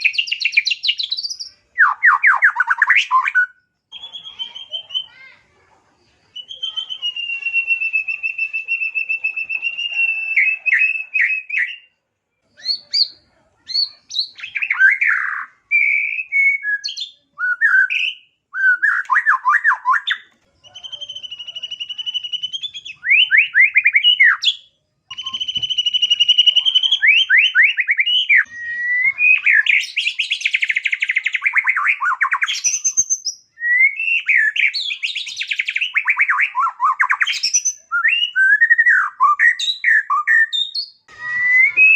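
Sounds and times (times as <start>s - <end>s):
songbird singing varied song: 0.0s - 5.2s, 6.3s - 11.9s, 12.5s - 41.9s.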